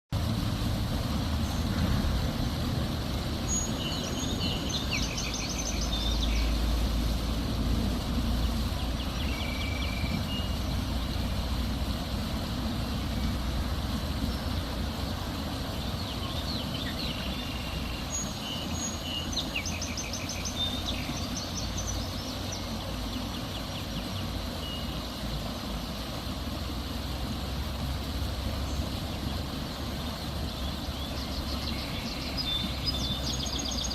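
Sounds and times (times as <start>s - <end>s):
rain: 0.2s - 33.9s
small bird chirping trills: 3.4s - 7.1s, 14.2s - 26.0s, 28.5s - 33.9s.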